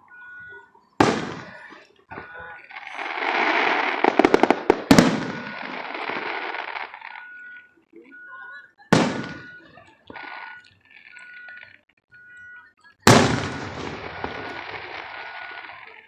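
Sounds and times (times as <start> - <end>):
firework bang: 1.0 - 1.8, 3.4 - 6.2, 9.0 - 9.6, 13.1 - 15.2
sharp firework cracks: 1.0 - 1.8, 2.8 - 7.1, 9.0 - 9.6, 13.1 - 15.8
fireworks hissing and crackling: 1.0 - 7.2, 13.1 - 16.0.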